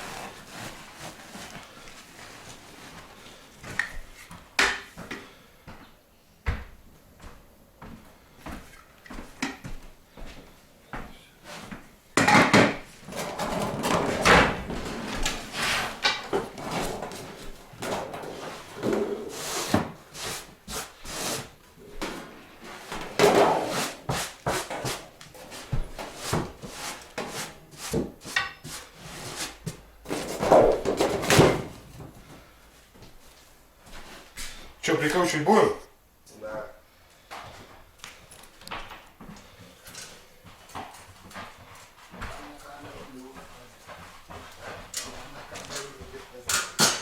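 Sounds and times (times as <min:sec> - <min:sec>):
knocks clunks and scrapes: 0:12.5 - 0:20.0.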